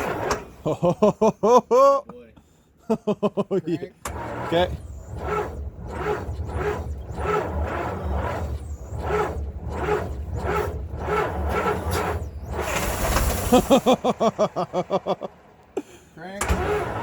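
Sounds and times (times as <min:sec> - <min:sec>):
engine cranking on starter: 0:00.0 - 0:00.7, 0:04.0 - 0:15.6, 0:16.3 - 0:17.0.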